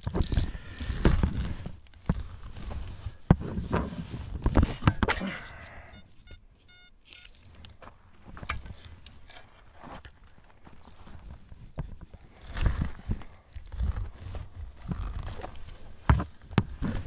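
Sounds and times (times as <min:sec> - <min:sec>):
hand pick scraping soil: 0:00.0 - 0:17.0
metal detector beeps: 0:05.1 - 0:07.4.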